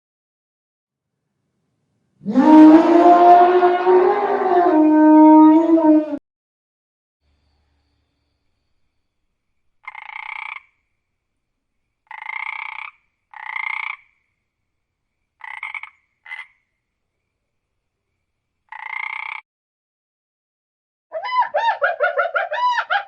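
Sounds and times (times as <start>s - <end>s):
frog croaking: 9.8s - 10.9s, 12.0s - 14.3s, 15.4s - 16.7s, 18.7s - 19.4s.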